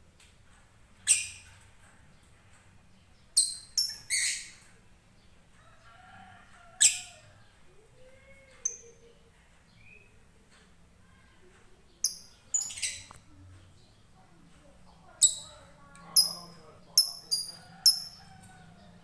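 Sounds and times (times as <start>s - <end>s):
lovebird high-pitched calls: 1.0s - 1.5s, 3.4s - 4.6s, 6.8s - 7.2s, 12.0s - 13.2s, 15.2s - 18.2s.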